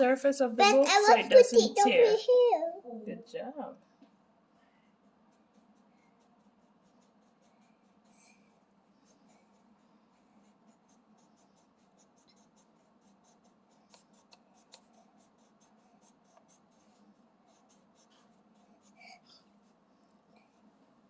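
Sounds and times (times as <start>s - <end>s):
crayon scratching on paper: 5.0s - 19.8s.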